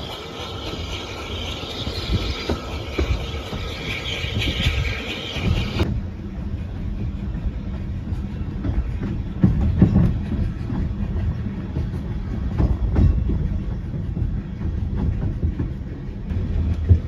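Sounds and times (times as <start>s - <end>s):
railway carriage rumbling: 0.0s - 17.0s
wheels clacking over rail joints: 0.0s - 17.0s.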